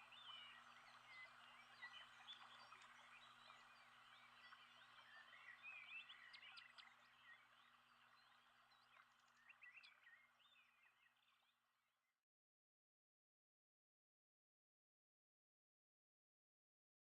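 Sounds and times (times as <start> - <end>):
many birds chirping: 0.0 - 11.3.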